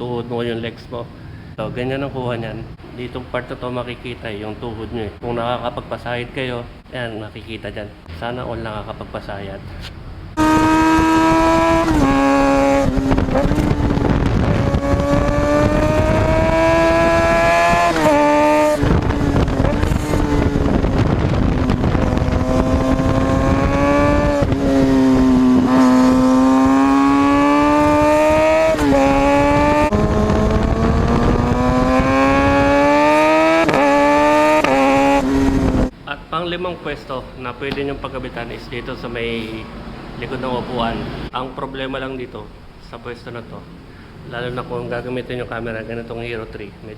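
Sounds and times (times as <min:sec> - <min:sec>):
motorcycle engine at high revs: 0:10.4 - 0:35.9
wind rush: 0:10.4 - 0:35.9.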